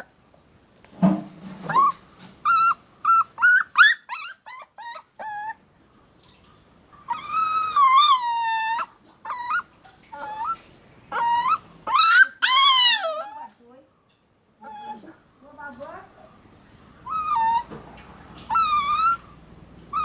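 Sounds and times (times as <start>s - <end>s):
puppy whining and yelping: 1.6s - 5.7s, 7.0s - 13.6s, 14.6s - 15.2s, 17.0s - 20.0s.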